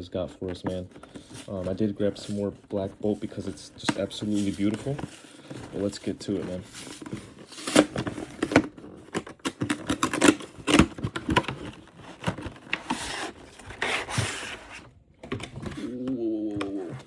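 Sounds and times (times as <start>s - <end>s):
packaging scraping rustles: 0.0s - 17.0s.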